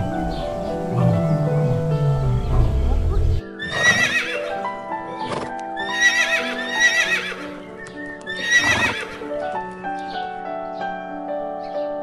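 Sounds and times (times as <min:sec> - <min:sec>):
soft piano music: 0:00.0 - 0:12.0
horse whinnying: 0:01.6 - 0:04.6, 0:05.3 - 0:07.6, 0:08.3 - 0:09.3.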